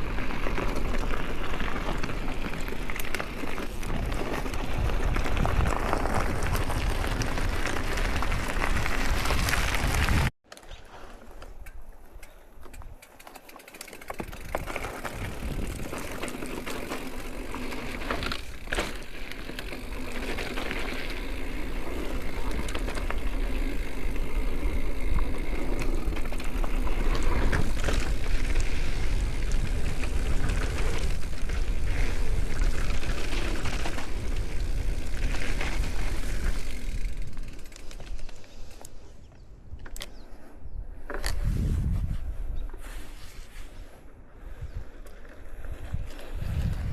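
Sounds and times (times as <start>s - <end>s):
bike tyres crunching over dirt: 0.0s - 46.9s
wind buffeting microphone: 3.7s - 10.3s, 14.2s - 16.4s, 39.3s - 42.8s, 44.3s - 46.9s.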